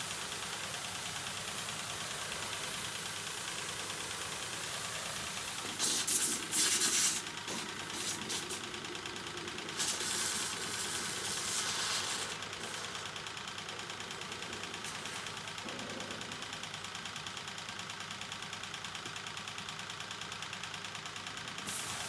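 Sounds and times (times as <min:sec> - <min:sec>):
water spray hissing: 0:00.0 - 0:13.2, 0:14.2 - 0:15.6, 0:21.7 - 0:22.0
small engine running: 0:00.0 - 0:22.0.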